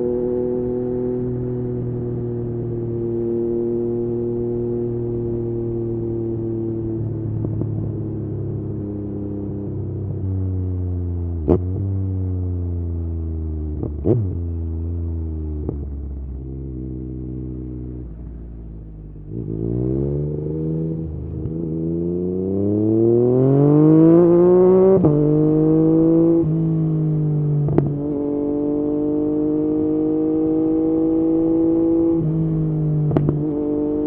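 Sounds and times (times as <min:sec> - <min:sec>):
motorcycle engine: 0:13.8 - 0:34.0.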